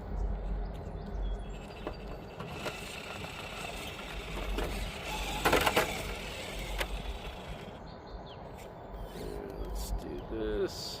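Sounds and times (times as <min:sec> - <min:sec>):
small electric motor whirring: 0:01.5 - 0:07.8.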